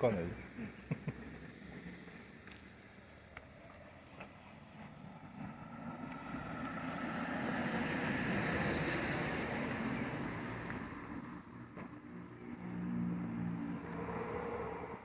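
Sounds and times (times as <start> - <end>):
car driving past: 4.9 - 15.0.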